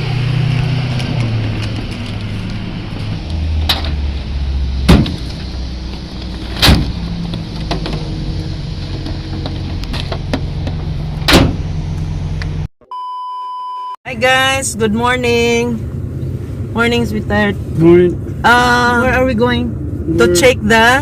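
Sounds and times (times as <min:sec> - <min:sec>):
car engine humming: 0:00.0 - 0:12.7, 0:14.1 - 0:21.0
car doors shutting: 0:06.4 - 0:08.1, 0:08.9 - 0:11.7.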